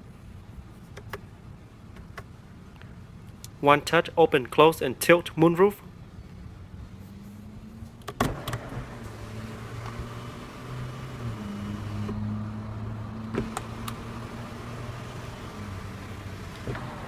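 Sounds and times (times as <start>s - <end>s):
electric motor humming: 8.5s - 12.7s, 13.3s - 17.0s.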